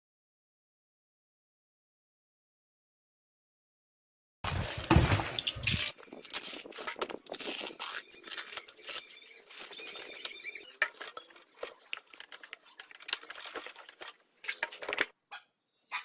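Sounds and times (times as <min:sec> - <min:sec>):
metal tools clinking and scraping: 0:05.7 - 0:13.5.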